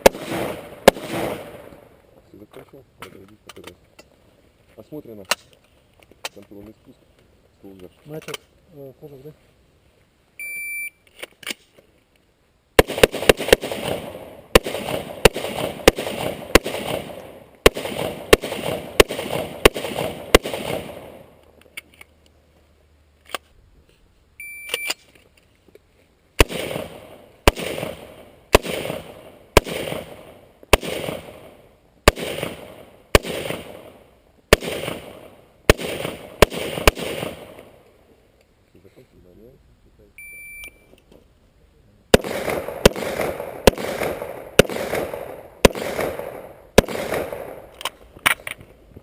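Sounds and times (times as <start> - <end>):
rifle shots echoing: 0.0 - 2.0, 12.8 - 21.4, 26.4 - 37.8, 42.1 - 47.9
short high beep: 10.4 - 11.0, 24.4 - 25.0, 40.2 - 41.0.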